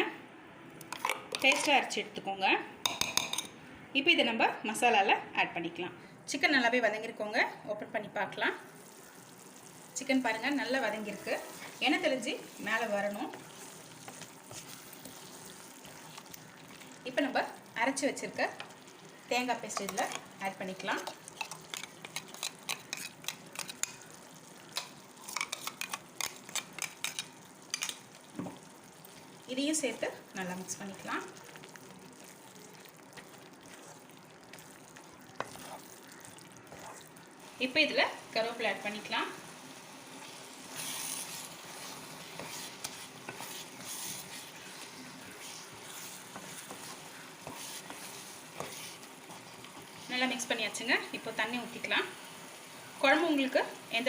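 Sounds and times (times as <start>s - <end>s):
spoon scraping a cooking pan: 13.3s - 16.5s, 19.7s - 28.1s, 31.4s - 37.1s, 40.6s - 50.4s.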